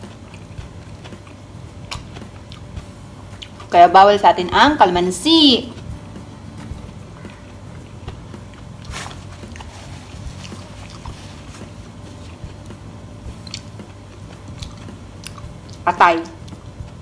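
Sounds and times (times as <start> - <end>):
person chewing food: 0.0 - 3.7, 5.8 - 15.8
low steady hum: 0.0 - 17.0
wet mouth clicks and smacks: 0.3 - 2.8, 13.3 - 15.8.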